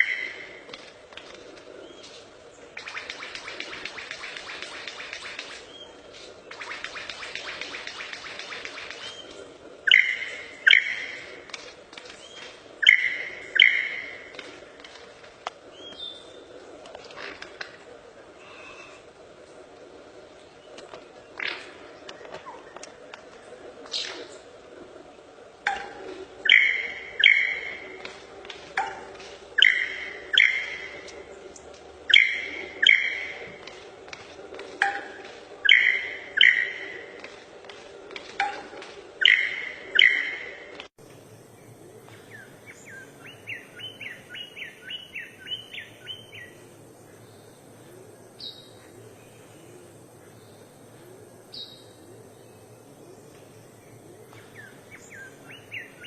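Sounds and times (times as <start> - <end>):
songbird chirping: 0.0 - 0.7, 1.8 - 15.0, 25.2 - 29.0, 29.6 - 33.7, 35.6 - 37.3, 39.2 - 56.0.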